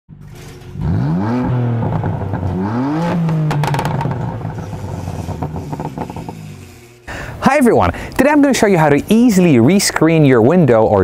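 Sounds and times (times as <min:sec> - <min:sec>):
car engine revving: 0:00.1 - 0:07.0.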